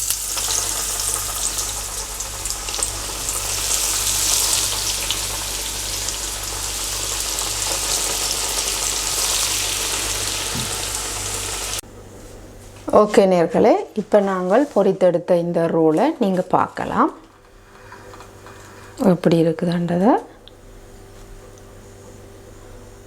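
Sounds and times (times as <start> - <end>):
oil sizzling in deep frying: 0.0 - 11.8.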